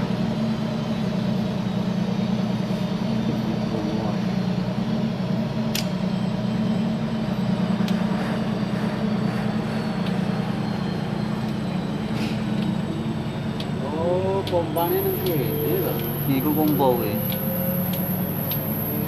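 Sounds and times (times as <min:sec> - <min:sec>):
sharp click: 0:05.7 - 0:06.0.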